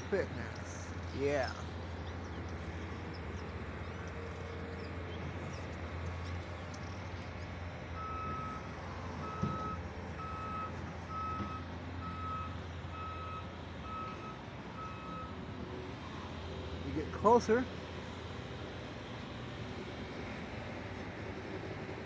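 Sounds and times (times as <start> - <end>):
vehicle backup alarm beeping: 7.9 - 17.4.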